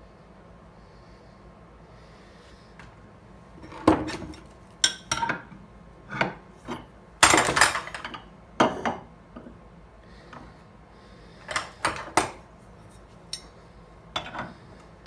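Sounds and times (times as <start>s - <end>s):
metal tools clattering: 6.7s - 8.2s.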